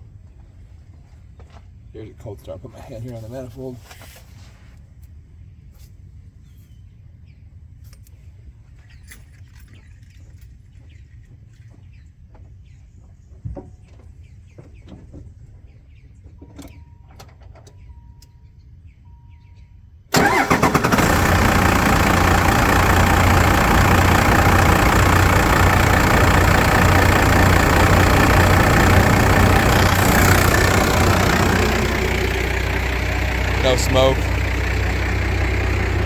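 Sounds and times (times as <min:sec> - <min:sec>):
diesel engine cranking: 0:20.1 - 0:36.0
diesel engine idling: 0:20.1 - 0:36.0.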